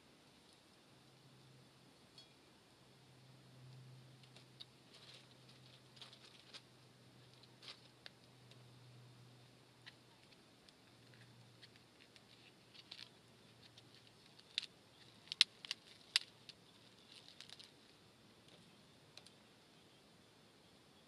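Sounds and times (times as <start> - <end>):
campfire crackling and popping: 9.8 - 18.6.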